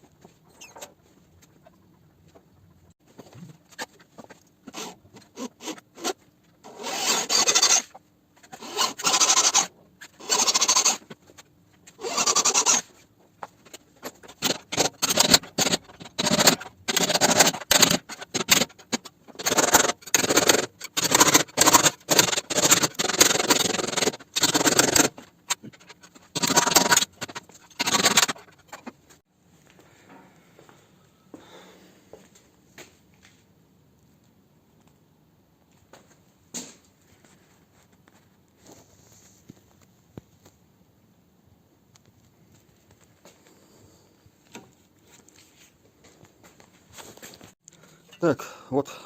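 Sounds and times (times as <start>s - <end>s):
electric drill grinding metal: 6.7s - 7.9s, 8.6s - 11.0s, 12.0s - 12.8s, 14.3s - 28.4s.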